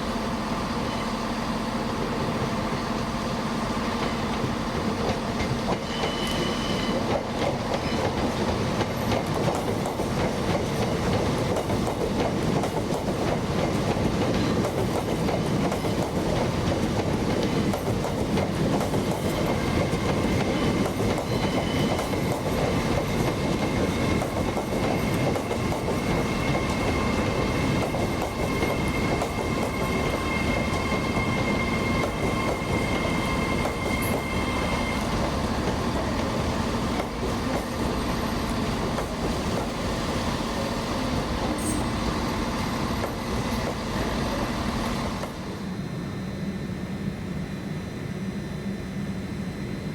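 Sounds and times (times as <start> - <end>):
train wheels rumbling on rail: 0.0 - 47.2
high wheel squeal: 5.8 - 8.2, 19.3 - 22.2, 26.0 - 35.4.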